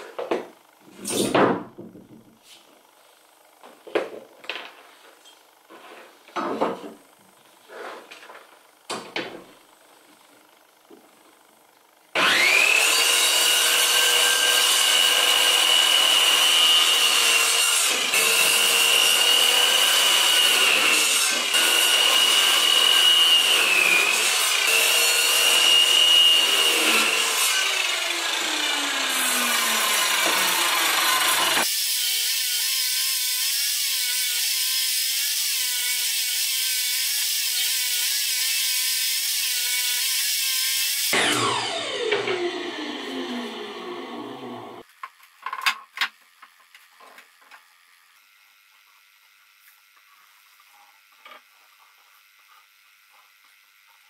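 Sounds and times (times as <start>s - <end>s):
circular saw cutting wood: 12.1s - 44.9s.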